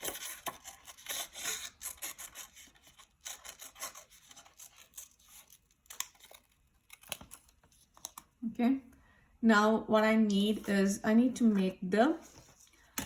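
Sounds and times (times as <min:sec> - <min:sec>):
paper rubbing and rustling: 0:00.0 - 0:08.2.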